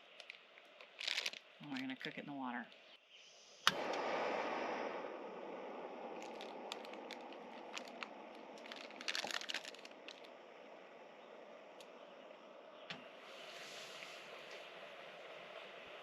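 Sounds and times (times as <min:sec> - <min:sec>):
plastic bag crinkling: 0:00.0 - 0:02.2, 0:06.2 - 0:10.3
steady hiss: 0:00.0 - 0:16.0.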